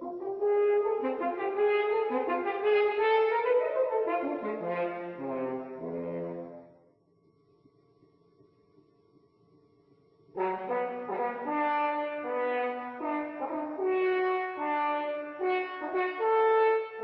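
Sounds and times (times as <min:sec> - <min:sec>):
brass held notes: 0:00.0 - 0:06.8, 0:10.4 - 0:17.0.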